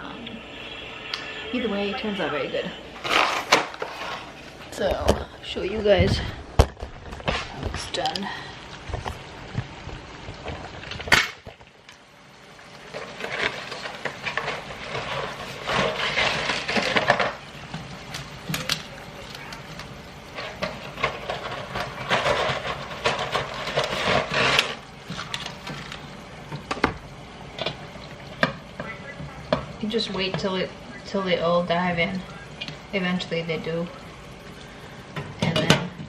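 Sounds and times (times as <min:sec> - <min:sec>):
dry pasta clattering in pot: 0:12.8 - 0:26.8.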